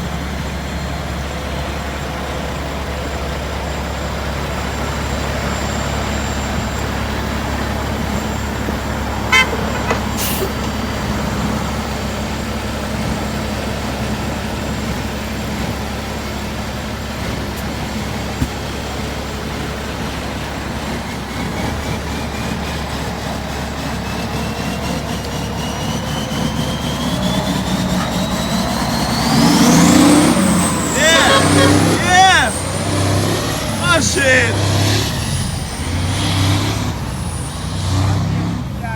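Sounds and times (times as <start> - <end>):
truck engine running: 0.0 - 38.9
high rising whistle: 24.1 - 36.1.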